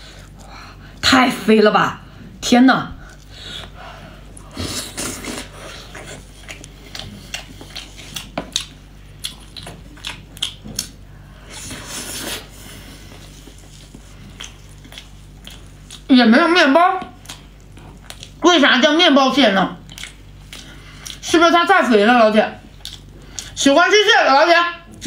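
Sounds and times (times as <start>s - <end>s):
wet chewing and lip smacks: 5.0s - 11.0s, 13.4s - 16.1s, 17.0s - 18.4s, 19.8s - 21.2s, 22.6s - 23.6s.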